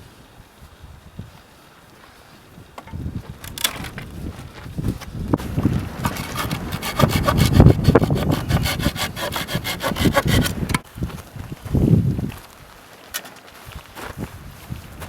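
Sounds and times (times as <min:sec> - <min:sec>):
rasping strokes: 0:05.6 - 0:10.8
short scrape: 0:05.8 - 0:10.8.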